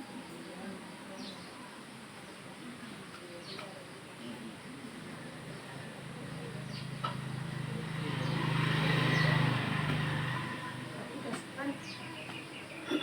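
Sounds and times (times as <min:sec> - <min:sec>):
vehicle engine passing by: 0:05.9 - 0:12.0.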